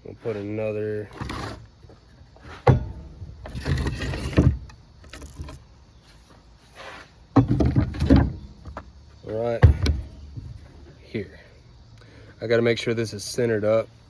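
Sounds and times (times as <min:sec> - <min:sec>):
scraping and rustling: 0:00.2 - 0:08.9.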